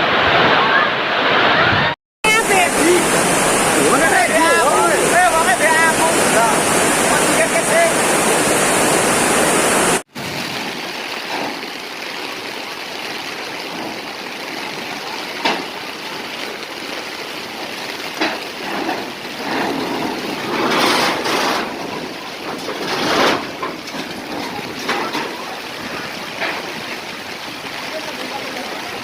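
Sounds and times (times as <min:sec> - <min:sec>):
storm rushing noise: 0:00.0 - 0:12.5, 0:17.4 - 0:27.6.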